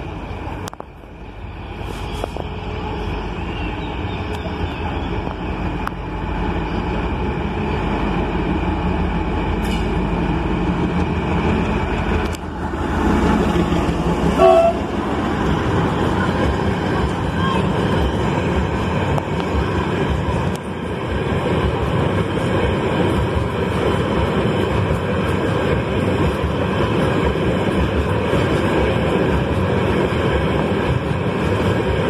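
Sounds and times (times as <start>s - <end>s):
diesel locomotive engine rumble: 0.0s - 32.0s
freight train rolling: 0.0s - 32.0s
train horn toot: 14.3s - 15.1s.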